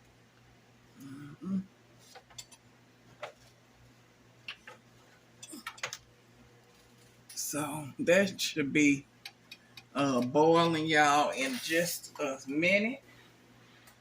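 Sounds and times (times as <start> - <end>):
faint steady hum: 0.0 - 14.0
person saying mm-hmm: 1.0 - 1.7.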